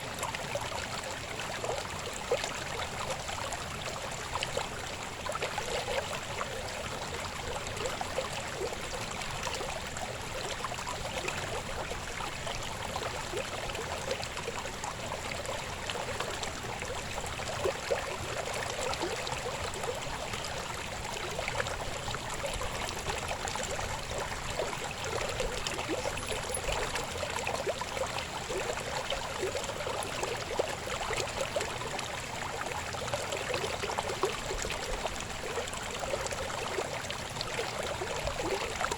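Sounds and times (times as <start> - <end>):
river water babbling: 0.0 - 38.9.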